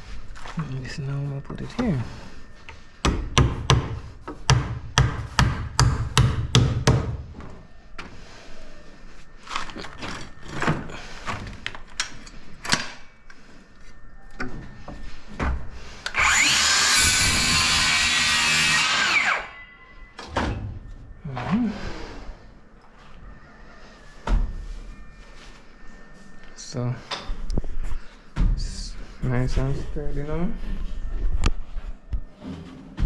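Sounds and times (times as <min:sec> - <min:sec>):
hammer striking nails into wood: 0:03.0 - 0:07.2
power tool running: 0:16.1 - 0:19.6.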